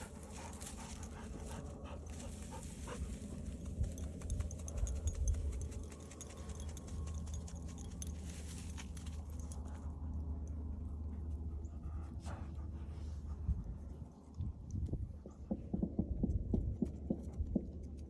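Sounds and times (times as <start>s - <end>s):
dog collar tags jingling: 0.0s - 10.0s
low rumble: 0.0s - 18.0s.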